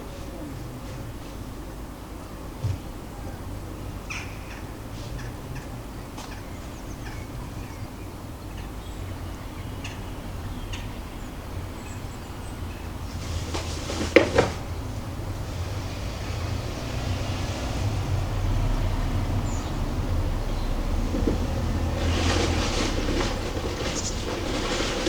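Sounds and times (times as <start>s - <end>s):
distant city traffic rumble: 0.0s - 25.0s
small birds calling: 0.0s - 25.0s
loud sharp clatters: 13.1s - 14.8s, 21.0s - 25.0s.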